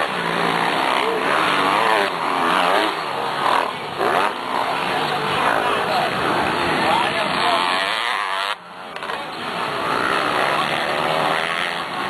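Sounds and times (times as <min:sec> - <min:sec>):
motocross bikes revving: 0:00.0 - 0:12.0.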